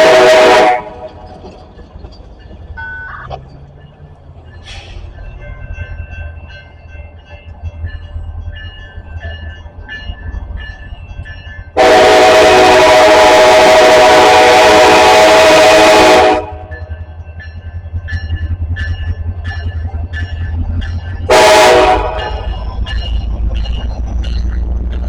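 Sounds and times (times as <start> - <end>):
locomotive air horn blast: 0.0 - 1.1, 11.8 - 16.7, 21.3 - 22.5
low rumble of approaching train: 0.0 - 25.0
level-crossing bell dinging: 1.6 - 11.8, 16.6 - 21.4, 22.0 - 25.0.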